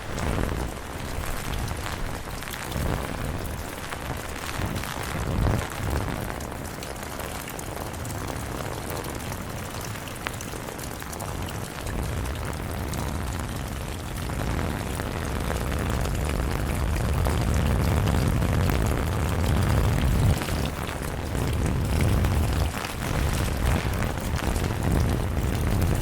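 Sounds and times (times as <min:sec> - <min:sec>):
rain pattering: 0:00.0 - 0:26.0
deep low rumble: 0:12.3 - 0:26.0.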